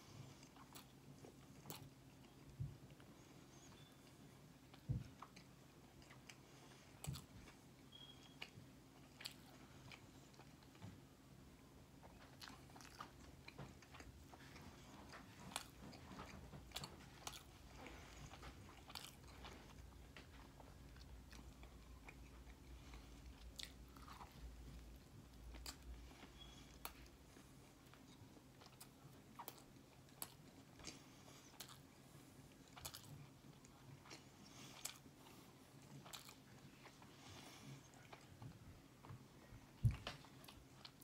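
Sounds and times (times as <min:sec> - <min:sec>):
low steady hum: 0:00.0 - 0:41.0
man chewing food: 0:00.0 - 0:41.0.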